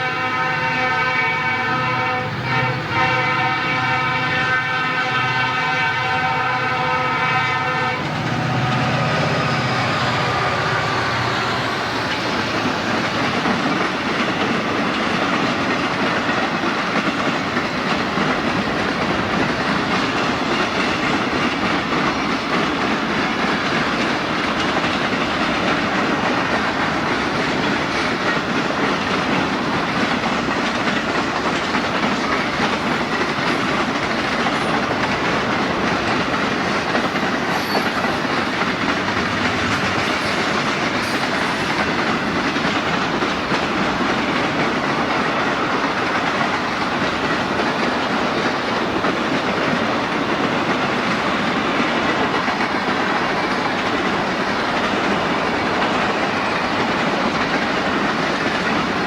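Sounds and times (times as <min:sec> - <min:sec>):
freight train wheels rumbling: 0:00.0 - 0:59.0
wheels clacking over rail joints: 0:00.0 - 0:59.0.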